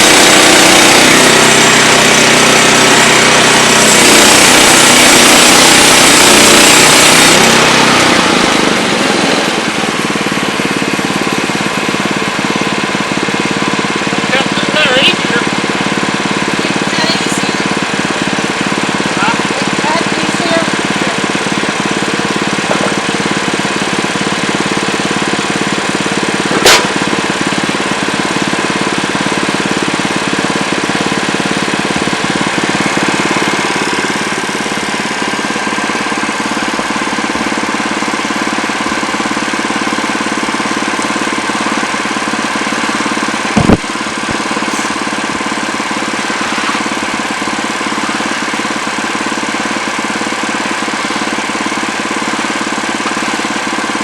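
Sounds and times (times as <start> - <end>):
sawmill engine running: 0.0 - 54.0
sharp knocks: 26.5 - 27.1, 43.6 - 44.9.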